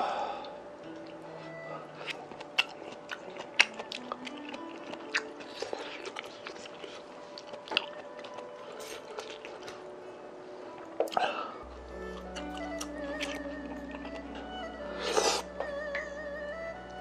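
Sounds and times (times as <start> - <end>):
soft background music: 0.0 - 17.0
chewing and biting food: 1.9 - 9.9, 12.1 - 14.2.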